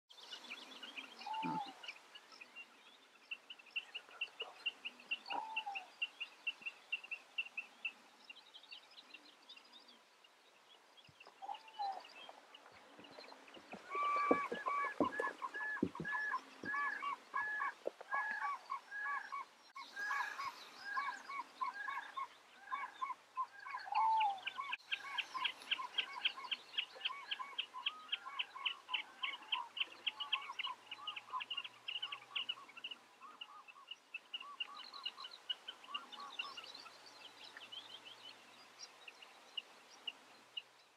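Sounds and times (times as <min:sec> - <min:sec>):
high repeated bird calls: 0:00.9 - 0:02.0, 0:13.6 - 0:36.7
marsh birds honking: 0:13.6 - 0:18.5.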